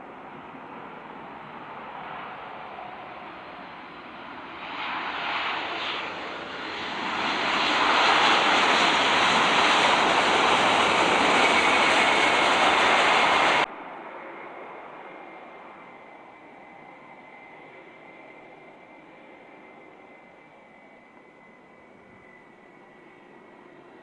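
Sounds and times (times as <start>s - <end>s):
jet engines roaring: 0.0s - 20.8s.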